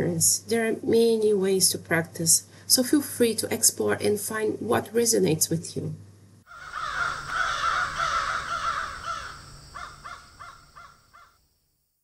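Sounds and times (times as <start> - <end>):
birds calling: 6.5 - 11.3.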